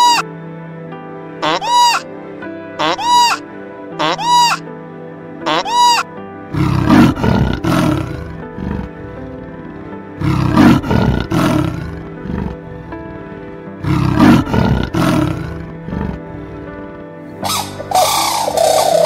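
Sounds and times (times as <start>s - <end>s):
background music: 0.0s - 19.0s
big cat roaring: 6.5s - 19.0s.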